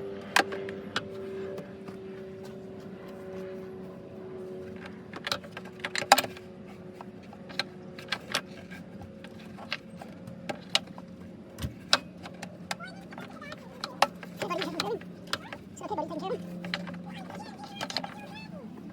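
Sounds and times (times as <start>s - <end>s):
tools and parts clinking: 11.7s - 18.5s.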